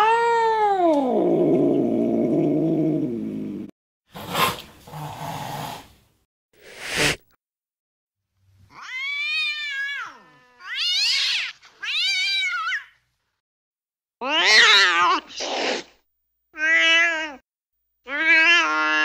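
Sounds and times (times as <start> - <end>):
cat hissing: 4.1 - 6.0, 6.6 - 7.2, 15.2 - 16.0
cat yowling: 8.7 - 13.0, 14.2 - 15.4, 18.1 - 19.0.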